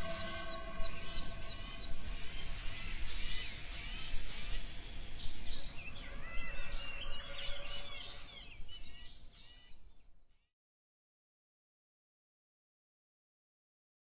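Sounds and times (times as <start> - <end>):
birds chirping: 0.0 - 10.1.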